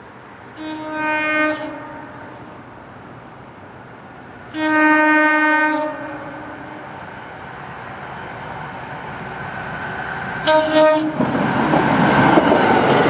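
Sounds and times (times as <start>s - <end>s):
train rumble: 0.0s - 13.0s
train air horn blast: 0.6s - 2.6s, 4.5s - 6.9s, 10.4s - 11.2s.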